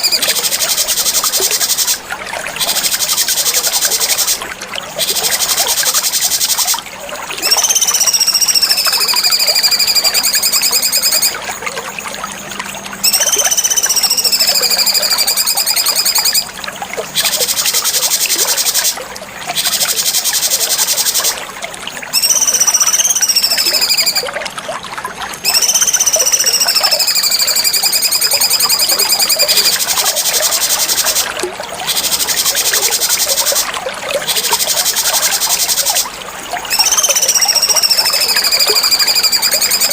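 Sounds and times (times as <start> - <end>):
bird whistling long notes: 7.4 - 11.4, 13.0 - 16.5, 22.1 - 24.3, 25.4 - 31.2, 36.6 - 39.9.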